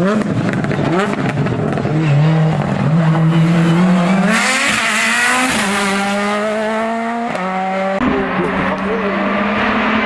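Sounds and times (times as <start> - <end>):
race car accelerating with upshifts: 0.0 - 10.0
loud rush of passing car: 2.2 - 10.0.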